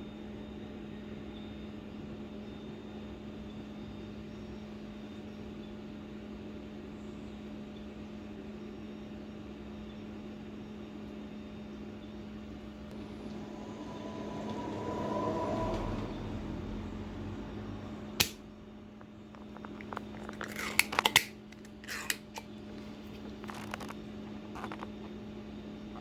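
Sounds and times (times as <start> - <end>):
steady low hum: 12.3 - 20.9.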